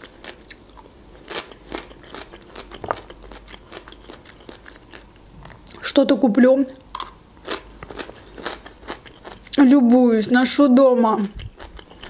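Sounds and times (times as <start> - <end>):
crunchy chewing of cucumber: 0.0 - 5.8, 6.9 - 9.6, 11.2 - 12.0.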